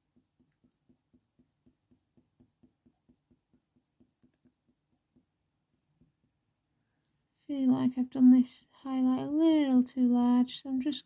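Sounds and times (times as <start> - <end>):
pencil strokes on paper: 0.0 - 7.3.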